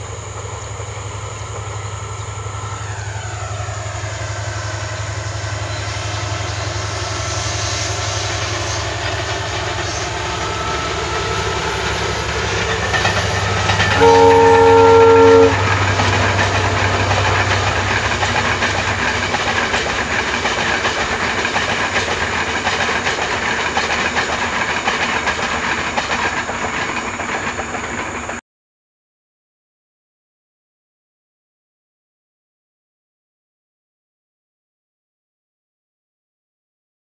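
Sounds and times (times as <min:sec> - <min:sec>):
coaches rumbling on track: 0:00.0 - 0:28.4
diesel engine drone: 0:00.0 - 0:28.4
train horn blast: 0:09.9 - 0:17.9.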